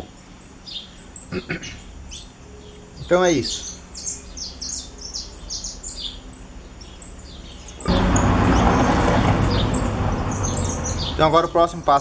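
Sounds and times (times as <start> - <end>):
small birds chirping: 0.0 - 12.0
loud steady rushing noise: 7.9 - 11.4.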